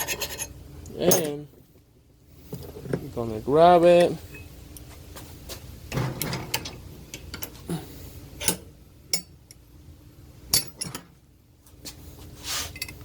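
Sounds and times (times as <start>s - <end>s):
metal tools clinking and knocking: 0.0s - 1.5s, 5.9s - 7.6s, 10.5s - 11.1s, 12.7s - 13.0s.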